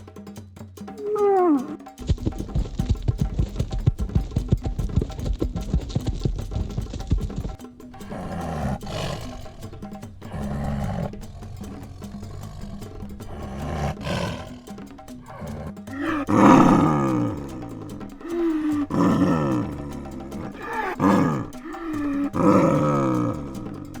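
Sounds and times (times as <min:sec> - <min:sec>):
big cat roaring: 0:01.0 - 0:01.8, 0:07.8 - 0:24.0.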